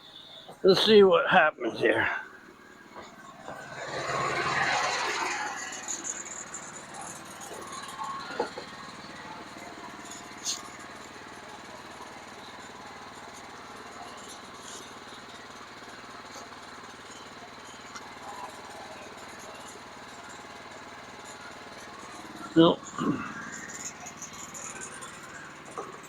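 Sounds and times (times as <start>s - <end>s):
sawmill engine running: 0.0s - 26.0s.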